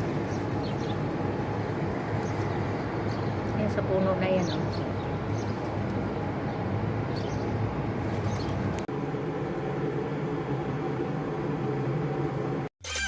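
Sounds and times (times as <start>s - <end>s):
small birds chirping: 0.0s - 8.7s
low mechanical hum: 0.0s - 12.7s.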